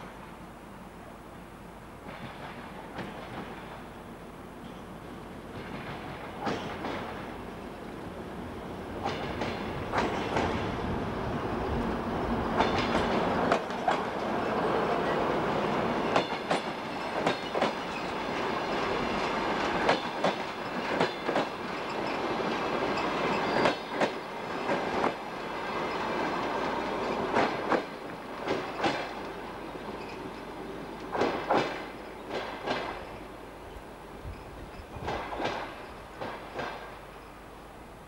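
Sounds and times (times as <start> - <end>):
train running gear rumble: 2.0 - 37.4
wheels clacking over rail joints: 5.5 - 7.5, 9.0 - 10.9, 11.7 - 33.3, 34.2 - 37.3.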